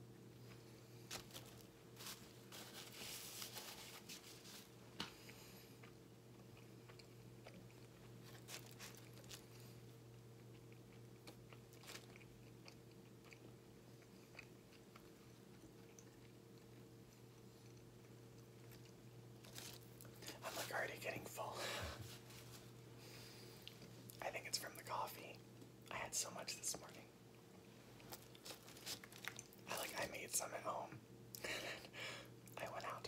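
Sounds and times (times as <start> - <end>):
faint steady hum: 0.0 - 33.0
person chewing a sandwich: 0.3 - 20.7, 22.8 - 24.2, 27.3 - 30.1.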